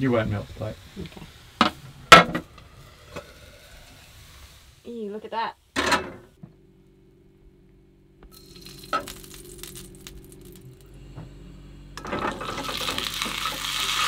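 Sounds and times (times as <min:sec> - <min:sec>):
hot oil in frying pan: 0:00.0 - 0:05.1, 0:08.3 - 0:10.8, 0:12.0 - 0:14.0
potato frying loud sizzle: 0:00.0 - 0:05.8, 0:08.3 - 0:10.9, 0:12.0 - 0:14.0.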